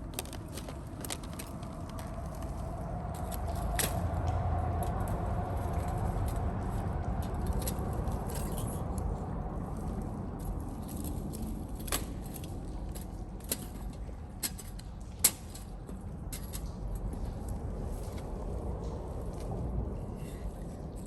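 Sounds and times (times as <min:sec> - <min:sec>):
wood fire crackling: 0:00.0 - 0:04.6
low steady rumble: 0:00.0 - 0:21.0.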